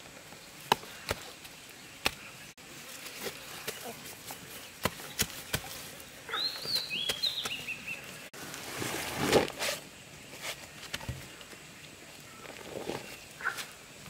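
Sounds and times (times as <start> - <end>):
bird chirping: 6.3 - 8.3.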